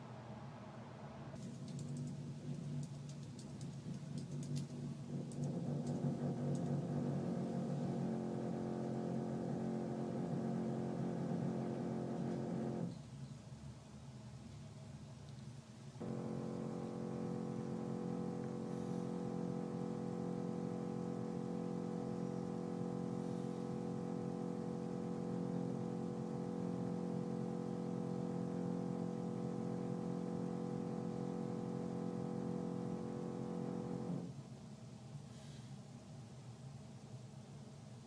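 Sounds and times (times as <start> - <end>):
construction machinery drone: 1.4 - 12.9, 16.0 - 34.3.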